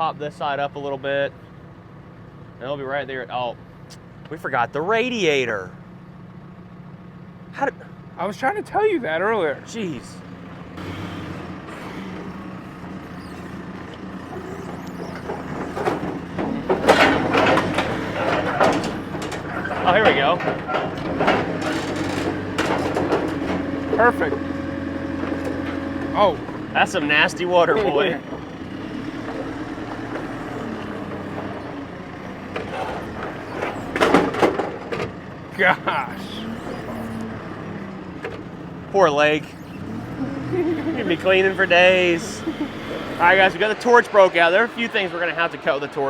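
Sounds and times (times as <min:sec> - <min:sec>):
forklift engine running: 0:00.0 - 0:46.0
metal clanks and rattles: 0:10.2 - 0:39.9
loud clattering: 0:10.8 - 0:24.4.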